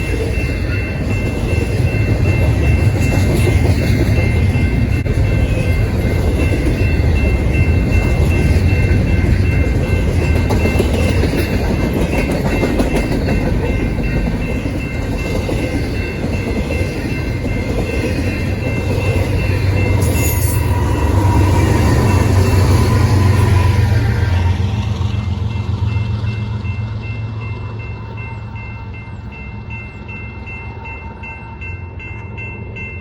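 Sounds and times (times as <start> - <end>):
wheels clickety-clack: 0.0 - 27.2
freight train wheels rumbling on rail: 0.0 - 33.0.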